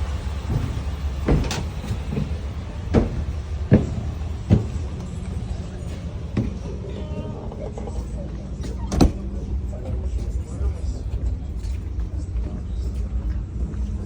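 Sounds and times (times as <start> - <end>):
low engine rumble: 0.0 - 14.0
metallic knocks and clanks: 0.5 - 5.3.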